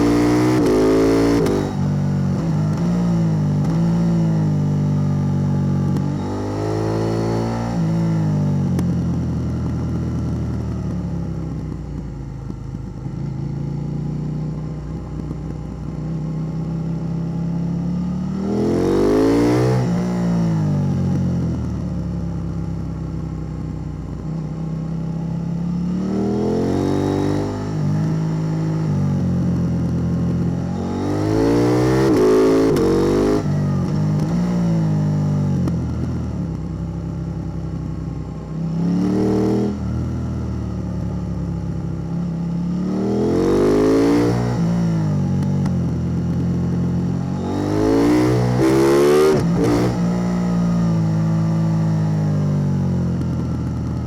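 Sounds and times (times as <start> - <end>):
motorcycle engine revving: 0.0 - 23.2, 24.2 - 54.0.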